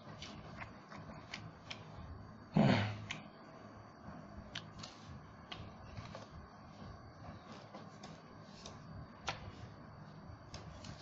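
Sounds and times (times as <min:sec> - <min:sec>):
breathy vocal grunt: 0:02.5 - 0:03.0.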